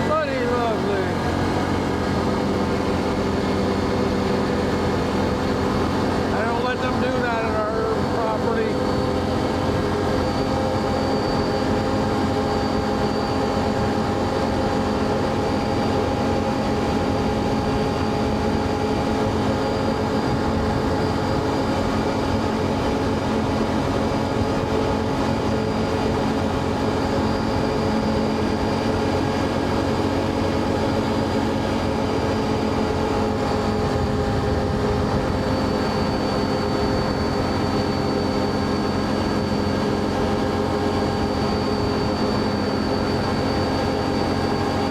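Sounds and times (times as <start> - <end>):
atv engine droning: 0.0 - 44.9
faint high whine: 0.0 - 44.9.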